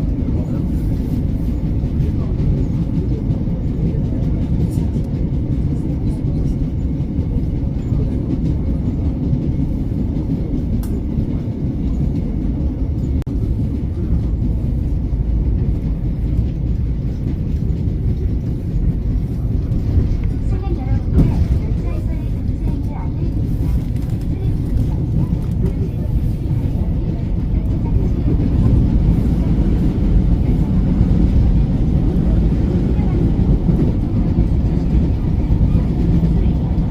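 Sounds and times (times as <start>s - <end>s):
train wheels rumbling: 0.0s - 36.9s.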